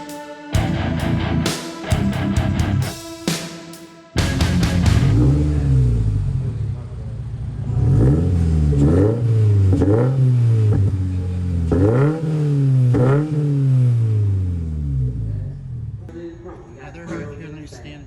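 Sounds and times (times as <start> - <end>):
car engine idling and revving: 4.2 - 16.1.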